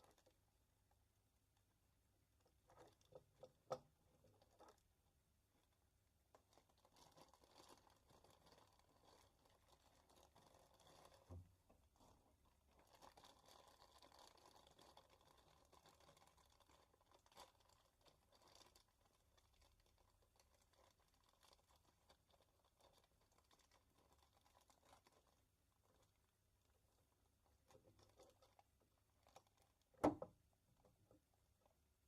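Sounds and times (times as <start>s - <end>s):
small rustles: 0.0s - 32.0s.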